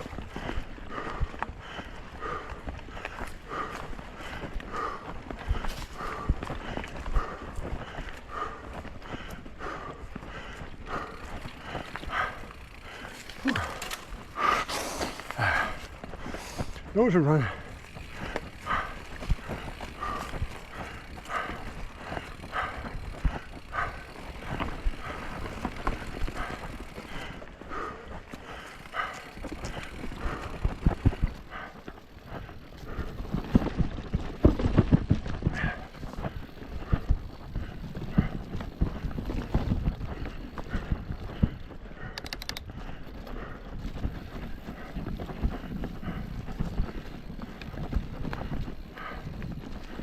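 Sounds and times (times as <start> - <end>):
bike knocking and rattling: 0.0 - 50.0
sharp clicks: 42.1 - 42.7.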